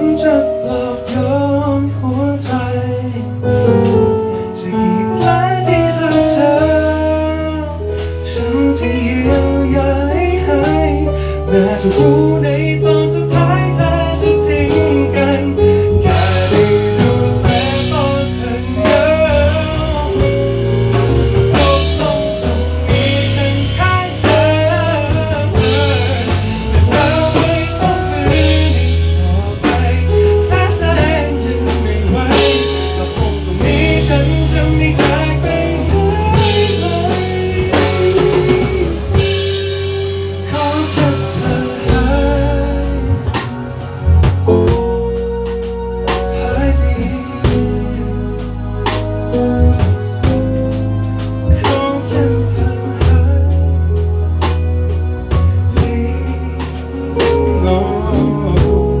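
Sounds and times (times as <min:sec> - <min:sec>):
band playing pop-rock song: 0:00.0 - 0:59.0
drums with cymbals: 0:13.2 - 0:45.0, 0:47.4 - 0:53.6, 0:55.3 - 0:59.0.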